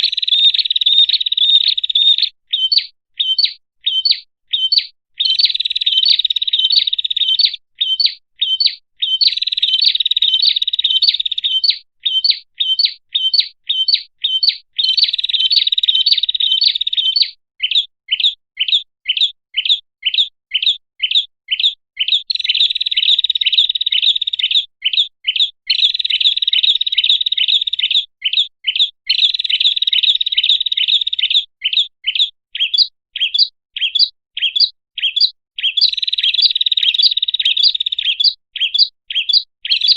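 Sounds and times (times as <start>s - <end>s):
bird sharp chirps: 0.0s - 39.9s.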